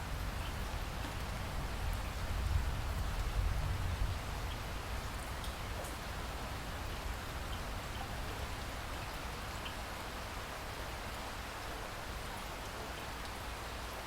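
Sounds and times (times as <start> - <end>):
steady rain hiss: 0.0 - 14.0
raindrops ticking: 4.4 - 9.9.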